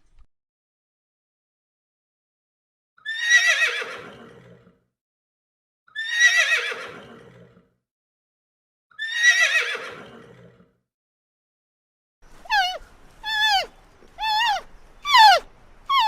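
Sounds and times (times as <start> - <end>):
horse whinnying: 6.0 - 7.2, 9.0 - 10.3, 12.4 - 16.0.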